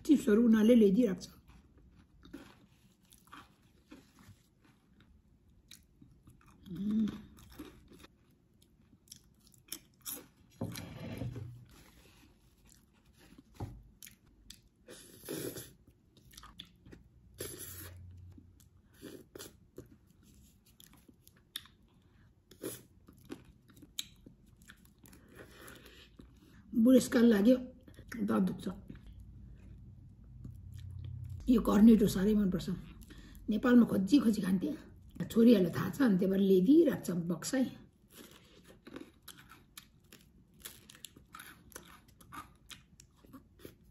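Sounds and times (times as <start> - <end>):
person crunching chips: 1.7 - 5.1, 38.0 - 43.9.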